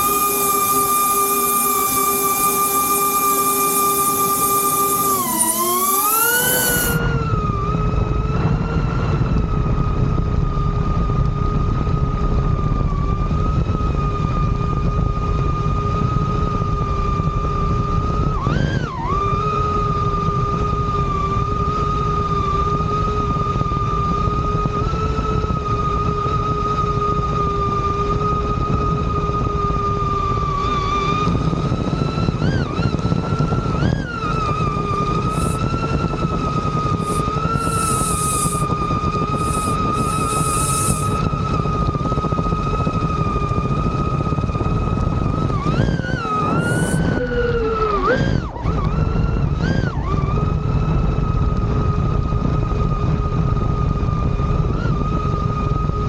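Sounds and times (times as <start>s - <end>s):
drone propellers whining: 0.0s - 9.6s, 32.3s - 49.9s.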